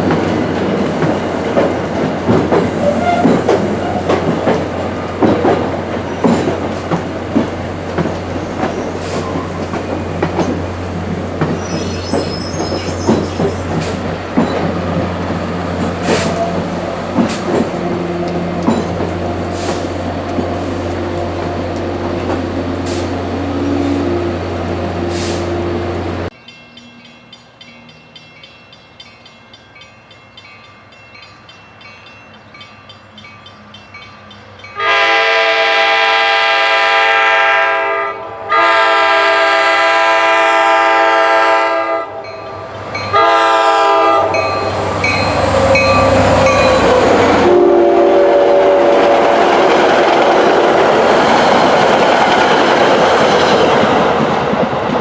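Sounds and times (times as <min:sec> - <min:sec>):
train passing with rail noise: 0:00.0 - 0:55.0
locomotive horn blasts: 0:02.8 - 0:04.0, 0:34.8 - 0:42.3, 0:43.1 - 0:44.8, 0:45.9 - 0:49.8.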